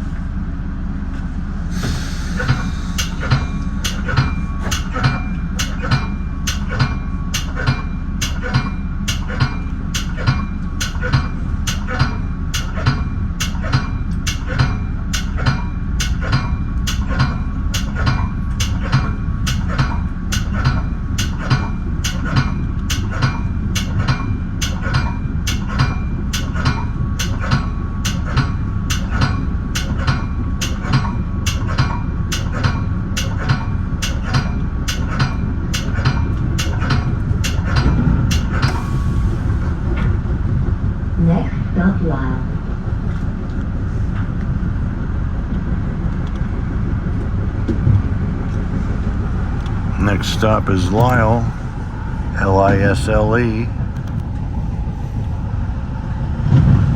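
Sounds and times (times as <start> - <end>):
train car rumble: 0.0 - 56.9
rail wheels clicking: 1.2 - 41.7.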